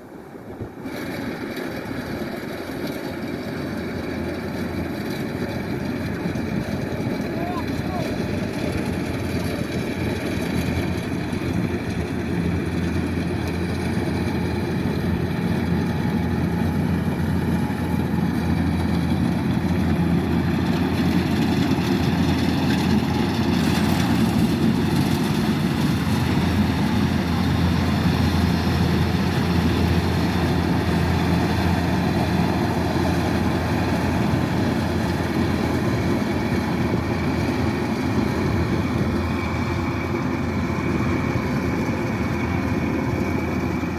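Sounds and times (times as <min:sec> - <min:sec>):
diesel engine running: 0:00.8 - 0:43.9.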